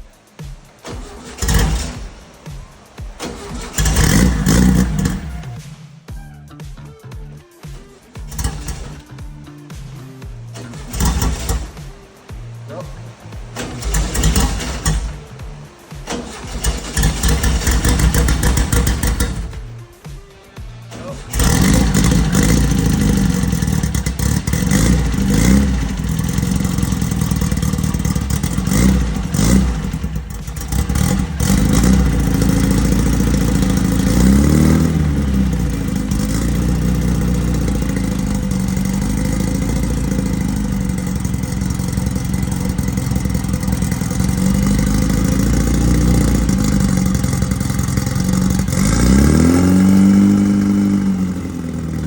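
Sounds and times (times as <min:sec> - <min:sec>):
car engine idling and revving: 0:00.0 - 0:52.0.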